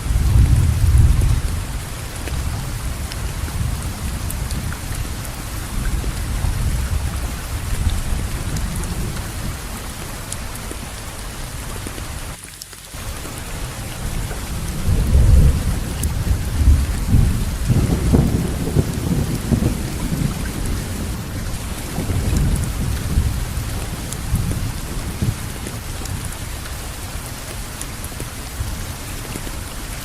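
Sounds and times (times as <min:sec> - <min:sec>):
low rolling thunder: 0:00.0 - 0:10.1, 0:13.0 - 0:26.4
heavy rainfall: 0:00.0 - 0:30.0.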